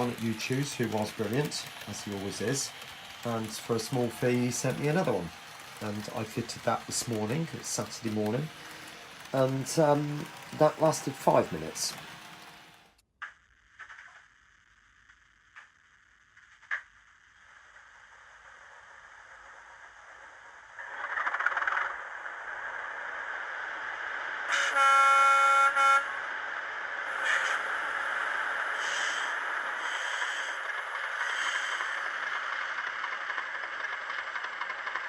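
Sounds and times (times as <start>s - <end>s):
locomotive horn: 24.5s - 26.3s.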